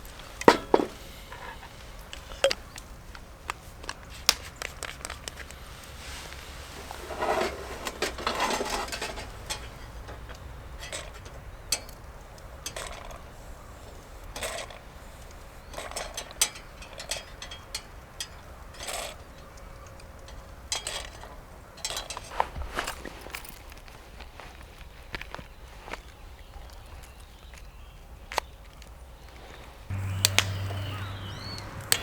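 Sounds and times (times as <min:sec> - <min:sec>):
cookware and utensils clinking: 0:00.4 - 0:02.8, 0:06.8 - 0:15.0, 0:15.6 - 0:23.1.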